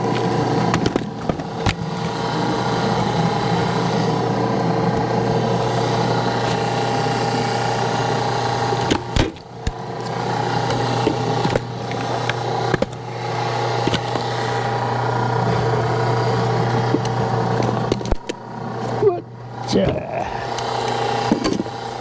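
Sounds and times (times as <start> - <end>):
wood cracking: 0.0 - 3.9, 8.8 - 13.0
log splitter humming: 0.0 - 22.0.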